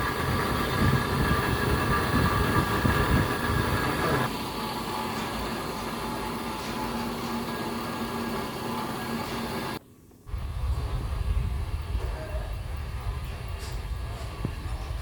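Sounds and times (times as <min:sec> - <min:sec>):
hose crimping machine whining: 0:00.0 - 0:09.8.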